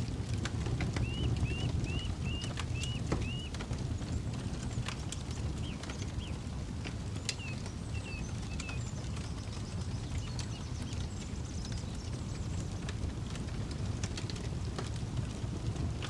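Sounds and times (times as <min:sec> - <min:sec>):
campfire crackling: 0:00.0 - 0:16.0
high bird chirps: 0:01.0 - 0:03.5.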